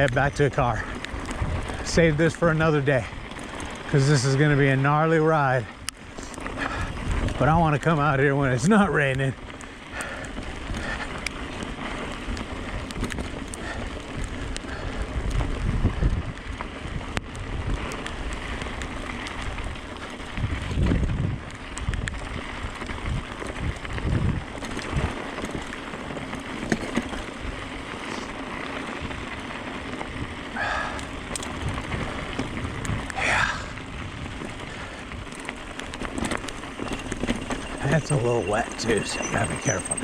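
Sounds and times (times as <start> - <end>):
wind buffeting microphone: 0.0 - 28.0, 28.8 - 40.0
rain hiss: 30.5 - 31.3, 33.0 - 40.0
sharp ticks: 35.1 - 40.0.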